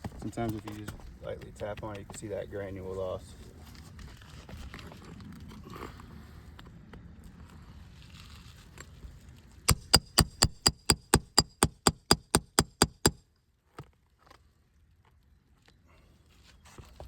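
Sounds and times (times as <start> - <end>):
hammer tapping roof shingle: 9.7 - 13.2.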